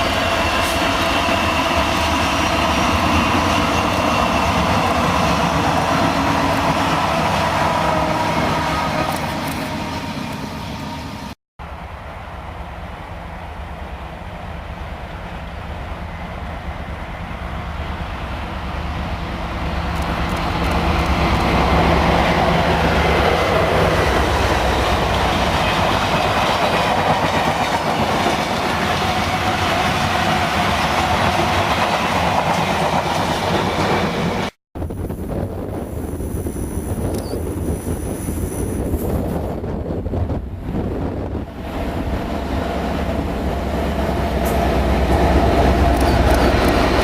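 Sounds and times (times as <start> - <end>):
diesel locomotive engine: 0.0 - 47.0
train wheels clattering on rails: 19.8 - 34.5, 43.0 - 47.0.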